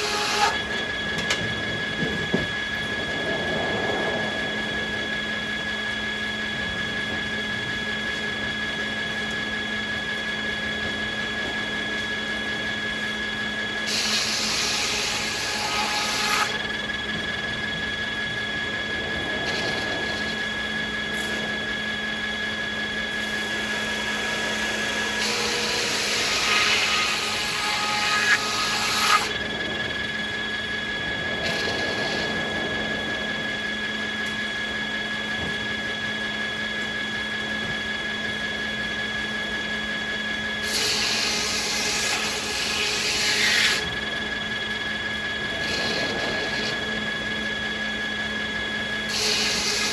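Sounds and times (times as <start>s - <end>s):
saw rasping through wood: 0.0s - 0.7s, 13.8s - 16.6s, 23.1s - 29.4s, 40.6s - 44.0s, 45.6s - 47.0s, 49.1s - 49.9s
sawmill saws humming: 0.0s - 49.9s.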